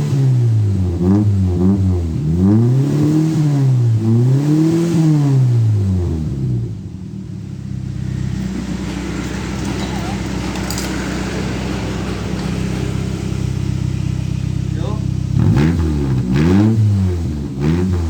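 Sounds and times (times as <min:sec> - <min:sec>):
car engine revving and idling: 0:00.0 - 0:18.0.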